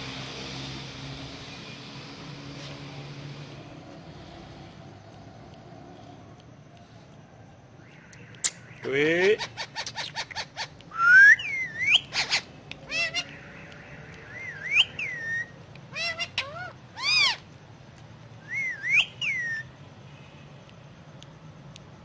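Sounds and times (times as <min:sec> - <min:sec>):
parakeet chirps: 0:07.8 - 0:17.5, 0:18.4 - 0:19.7
parakeet whistling: 0:09.4 - 0:17.4, 0:18.4 - 0:19.7.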